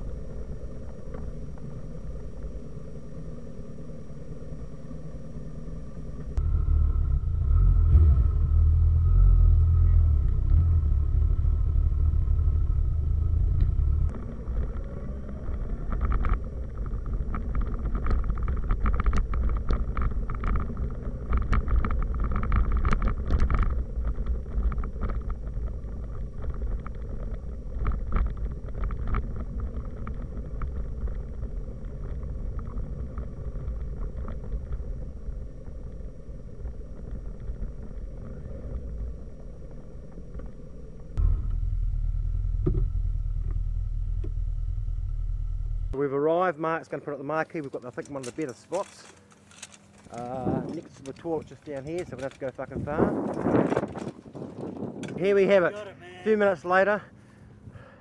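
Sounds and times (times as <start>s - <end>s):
motorcycle engine rumble: 0.0s - 46.6s
wind and road noise: 0.0s - 58.0s
wind crackles on microphone: 9.7s - 41.2s, 49.9s - 57.9s.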